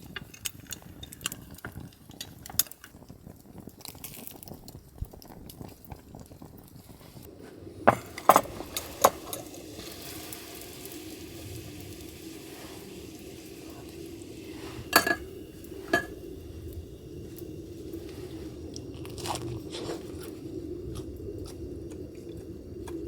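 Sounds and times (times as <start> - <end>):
pan sizzling: 0.0 - 23.0
metal cookware clinking: 7.9 - 9.6, 14.6 - 16.3
metal utensils scraping and tapping: 7.9 - 10.0, 14.5 - 16.2.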